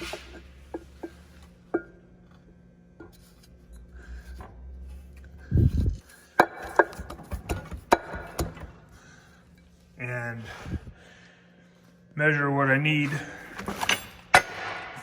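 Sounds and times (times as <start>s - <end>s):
sharp metal knocks and clanks: 6.4s - 8.8s, 13.6s - 15.0s.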